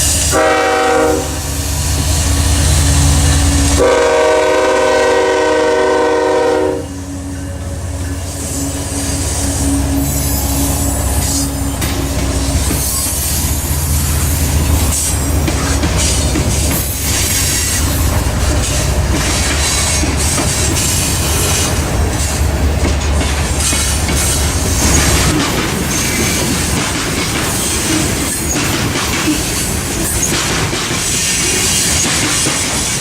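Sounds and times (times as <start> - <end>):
train rumbling and rattling by: 0.0 - 33.0
locomotive horn blasts: 0.2 - 1.6, 3.4 - 13.3.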